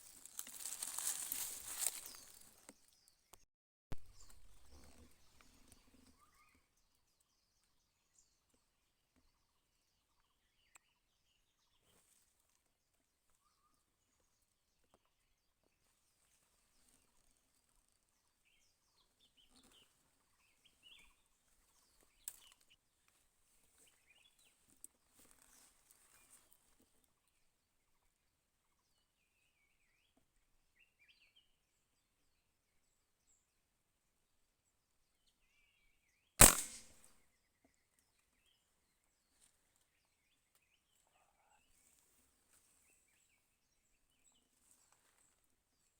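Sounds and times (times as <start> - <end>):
sharp clicks: 36.4 - 37.0
faint bird chirps: 40.4 - 42.0.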